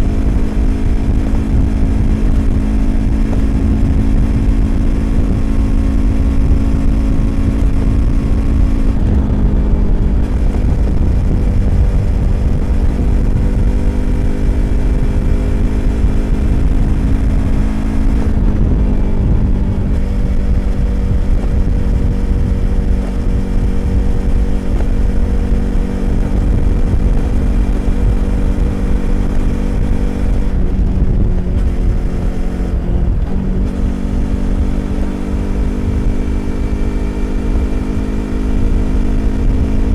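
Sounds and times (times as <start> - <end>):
motorcycle engine cruising: 0.0 - 39.9
wind rumble: 0.0 - 39.9.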